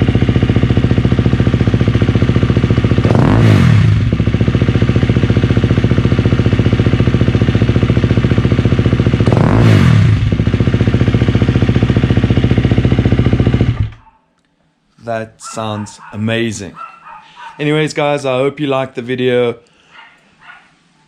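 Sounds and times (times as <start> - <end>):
motorcycle engine idling: 0.0 - 14.1.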